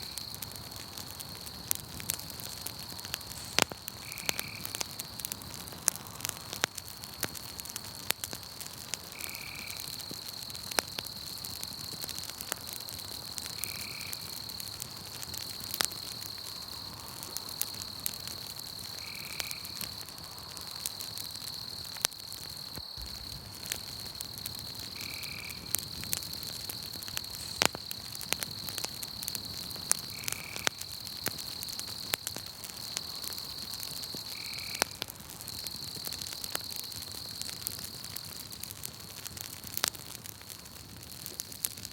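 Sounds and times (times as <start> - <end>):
high insect trill: 0.0 - 5.4, 15.4 - 38.0
campfire crackling and popping: 0.0 - 41.9.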